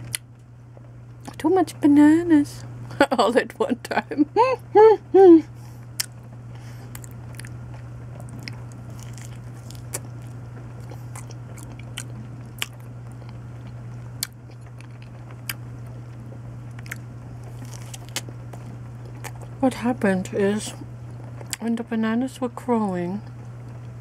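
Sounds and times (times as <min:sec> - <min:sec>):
low hum: 0:00.0 - 0:24.0
person chewing: 0:06.8 - 0:19.6.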